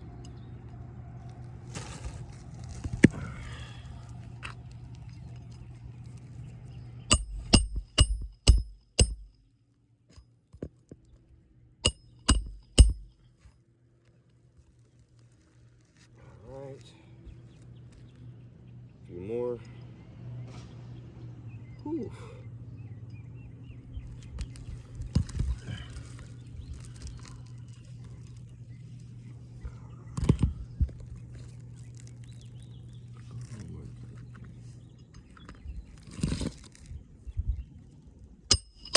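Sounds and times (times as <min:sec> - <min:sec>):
hammer driving nails: 0:07.1 - 0:09.3, 0:11.8 - 0:13.1.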